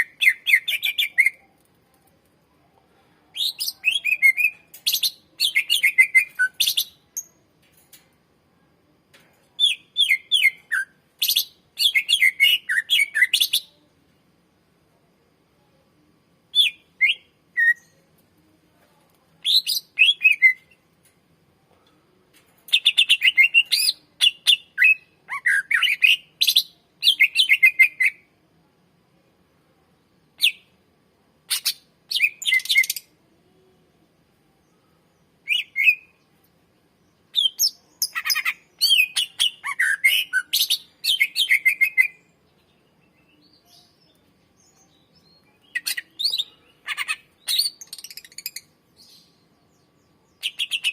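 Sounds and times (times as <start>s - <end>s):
bird singing chirps and whistles: 3.4s - 7.4s, 9.6s - 13.7s, 16.5s - 18.0s, 19.4s - 20.8s, 22.8s - 28.2s, 31.5s - 33.0s, 35.4s - 36.2s, 37.3s - 42.3s, 44.7s - 49.4s.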